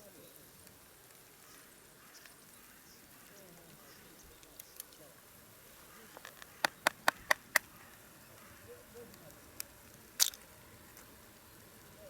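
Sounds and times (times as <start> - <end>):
sharp clicks: 6.2 - 8.0.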